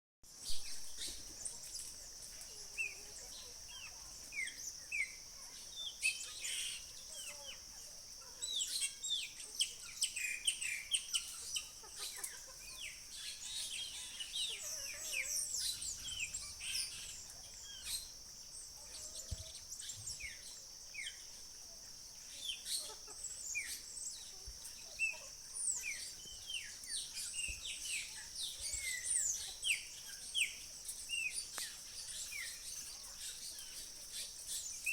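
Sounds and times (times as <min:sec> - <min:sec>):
small birds chirping: 0:00.3 - 0:34.9.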